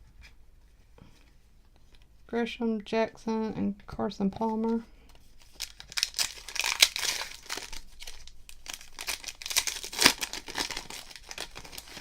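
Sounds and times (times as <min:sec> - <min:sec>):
card pack wrapper crinkling: 0:05.4 - 0:12.0.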